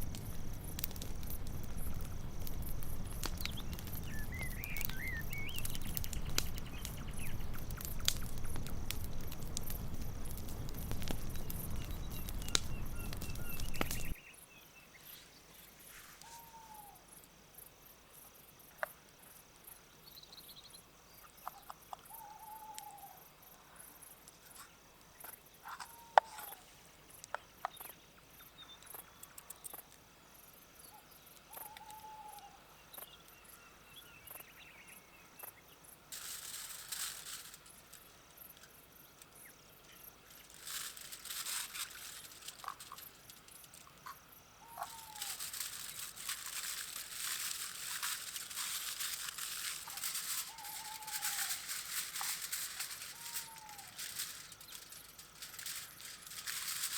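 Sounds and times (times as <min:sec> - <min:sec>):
hissing crackling noise: 0:00.0 - 0:14.2, 0:36.1 - 0:56.9
crickets chirping: 0:00.0 - 0:56.9.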